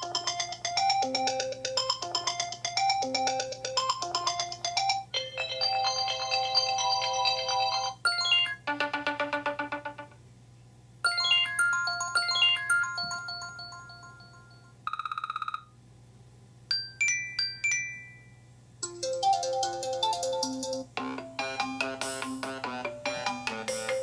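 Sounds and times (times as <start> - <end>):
bell-like chime ringtone: 0.0 - 8.8, 11.1 - 15.5, 16.8 - 20.8
melody with several instruments: 0.0 - 10.0, 11.1 - 14.7.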